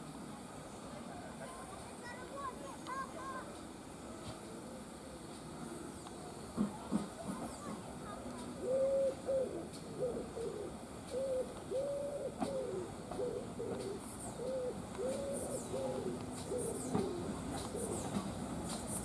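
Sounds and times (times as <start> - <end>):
wood pigeon cooing: 8.4 - 18.2
small birds chirping: 12.2 - 19.0.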